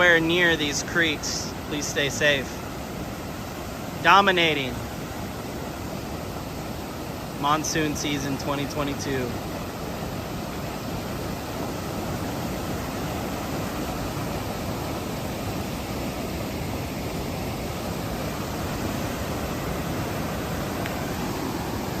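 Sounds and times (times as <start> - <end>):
creek rushing in flood: 0.0 - 22.0.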